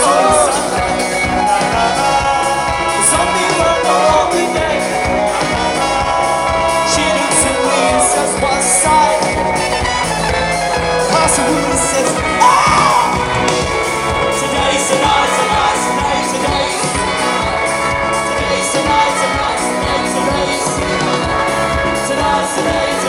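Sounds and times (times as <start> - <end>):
person singing: 0.0 - 9.4, 11.1 - 13.3
crowd noise: 0.0 - 23.0
live band playing: 0.0 - 23.0.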